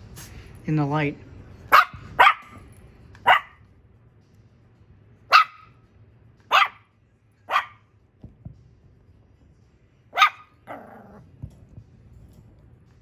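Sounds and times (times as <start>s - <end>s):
puppy barking: 1.7s - 3.6s, 5.3s - 5.8s, 6.5s - 6.9s, 7.5s - 7.9s, 10.1s - 11.2s.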